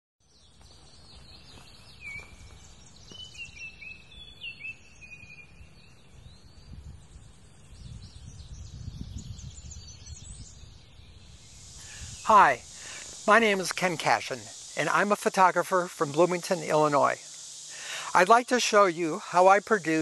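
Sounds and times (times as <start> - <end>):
birds singing: 0.2 - 13.6.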